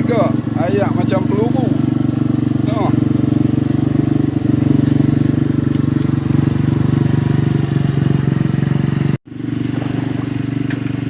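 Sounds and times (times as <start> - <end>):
boat engine throbbing: 0.0 - 11.0.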